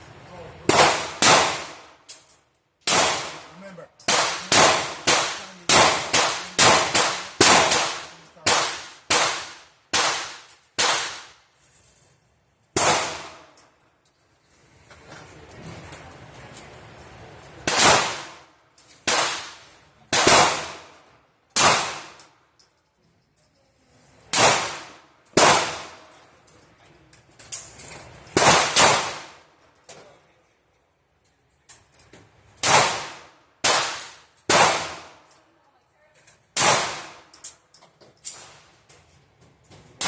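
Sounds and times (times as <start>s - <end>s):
gunshots with ringing decay: 0.6s - 2.0s, 2.8s - 3.5s, 4.1s - 11.4s, 12.8s - 13.6s, 17.6s - 21.0s, 21.6s - 22.2s, 24.3s - 26.1s, 28.4s - 29.5s, 32.6s - 35.3s, 36.6s - 37.3s.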